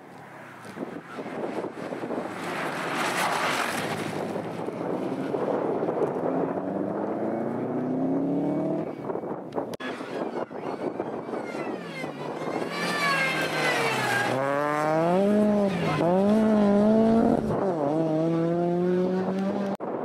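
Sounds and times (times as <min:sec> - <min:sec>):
race car engine revving: 0:12.8 - 0:19.8.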